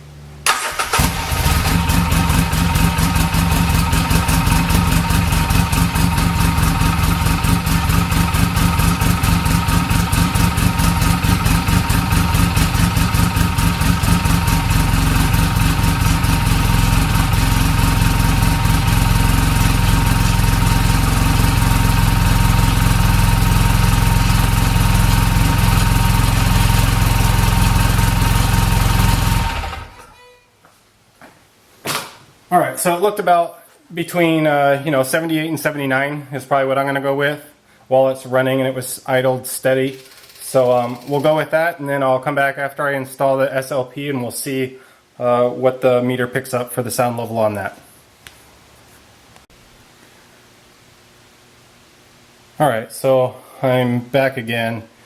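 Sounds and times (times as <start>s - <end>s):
engine idling: 0.5s - 30.0s.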